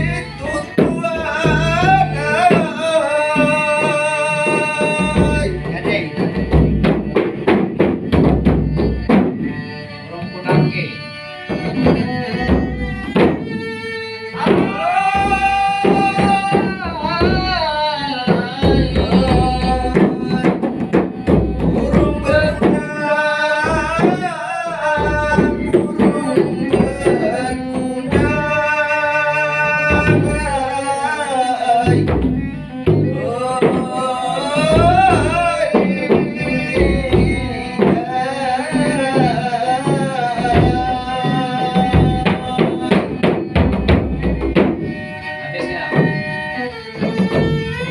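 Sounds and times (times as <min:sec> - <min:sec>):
hand drum percussion: 0:00.0 - 0:28.8, 0:29.6 - 0:47.9
instrumental accompaniment: 0:00.0 - 0:47.9
person singing ornamented lines: 0:14.2 - 0:43.7.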